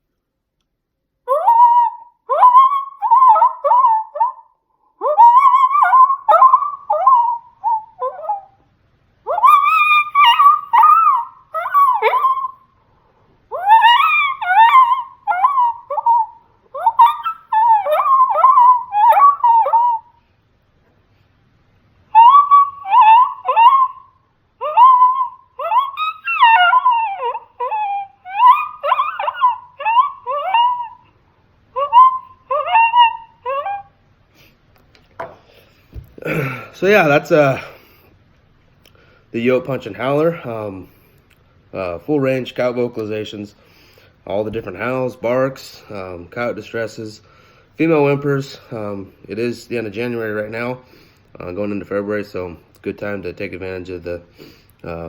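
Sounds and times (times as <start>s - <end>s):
coyote howler whimpering whines: 1.3s - 8.6s, 9.2s - 12.7s, 13.5s - 20.2s, 22.1s - 34.0s.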